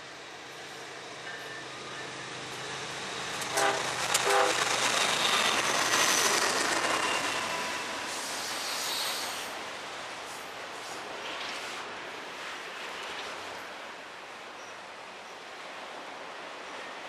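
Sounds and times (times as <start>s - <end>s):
freight train passing: 0.0s - 17.0s
train horn blasts: 3.5s - 4.6s.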